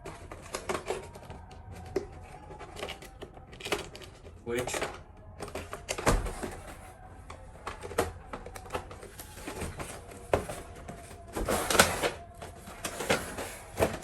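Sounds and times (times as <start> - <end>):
hands clicking and tapping toy: 0.0 - 14.0
rustling scrape of packaging: 9.0 - 14.0.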